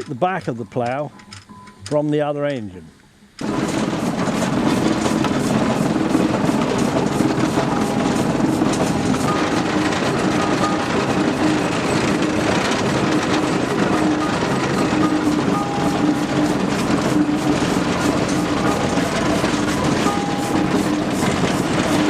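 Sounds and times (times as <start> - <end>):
mechanical clatter: 3.4 - 22.0
steam engine exhaust beat: 3.4 - 22.0.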